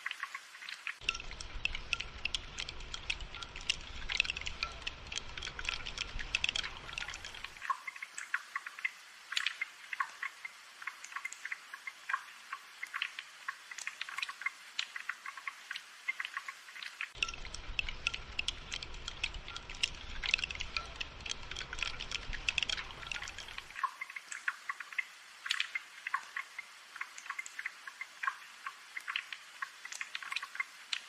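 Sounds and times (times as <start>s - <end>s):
rain pattering: 0.0s - 31.0s.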